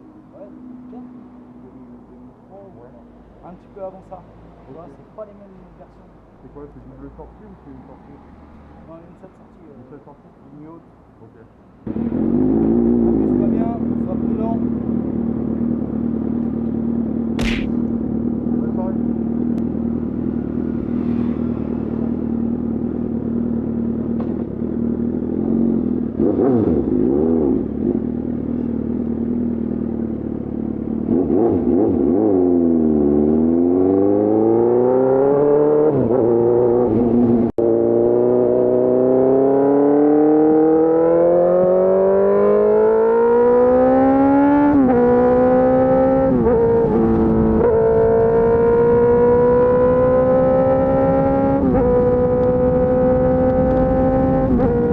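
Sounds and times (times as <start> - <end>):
motorcycle accelerating through gears: 11.9 - 54.9
motorcycle engine revving: 11.9 - 54.9.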